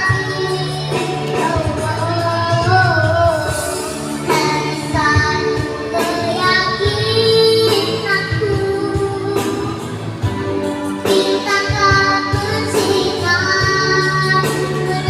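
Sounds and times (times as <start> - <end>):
girl singing: 0.0 - 10.1, 10.9 - 15.0
musical accompaniment: 0.0 - 15.0.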